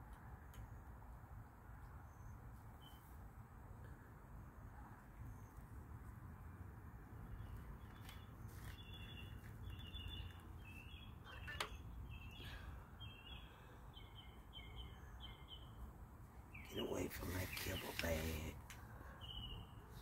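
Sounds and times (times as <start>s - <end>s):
bird chirping: 2.0s - 3.1s, 7.3s - 18.5s, 19.1s - 20.0s.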